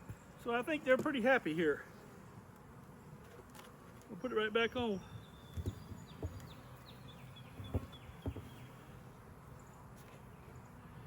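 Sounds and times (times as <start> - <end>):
honeybees buzzing: 0.0 - 11.0
hive cover knocks: 5.5 - 6.6, 7.6 - 8.7.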